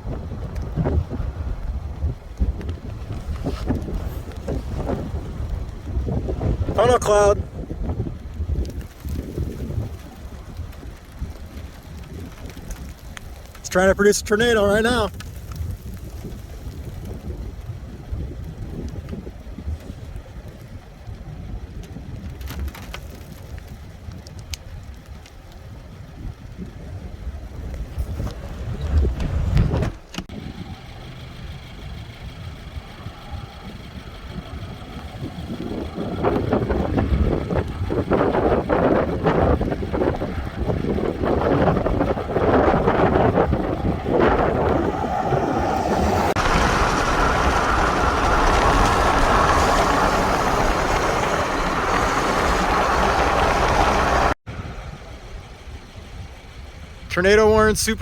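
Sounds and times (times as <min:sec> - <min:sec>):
wind on microphone: 0:00.0 - 0:13.9, 0:15.1 - 0:56.4
road noise: 0:00.0 - 0:58.0
car engine running: 0:27.2 - 0:57.1.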